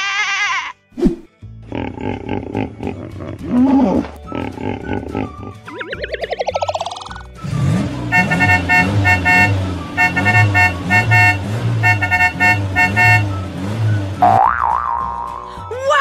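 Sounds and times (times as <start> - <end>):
cartoon car engine humming: 4.2 - 15.7
warbling cartoon sound effect: 5.6 - 7.3
rapid horn beeps: 8.1 - 13.5.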